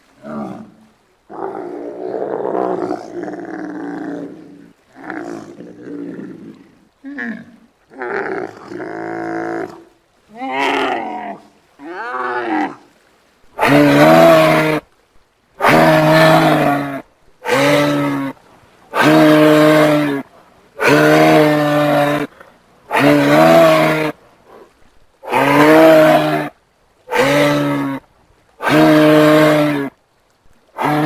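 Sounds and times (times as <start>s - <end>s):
giraffe deep calls: 13.6s - 14.8s, 15.6s - 26.5s, 27.1s - 28.0s, 28.6s - 29.9s, 30.8s - 31.0s.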